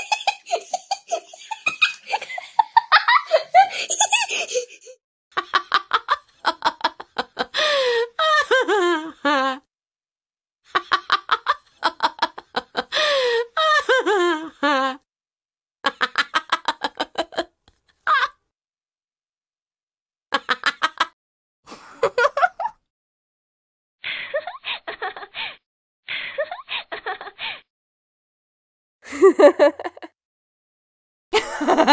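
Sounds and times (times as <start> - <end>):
woman laughing: 0.0 - 9.6, 10.8 - 15.0, 24.2 - 25.6, 26.2 - 27.6, 29.1 - 30.1, 31.4 - 31.9.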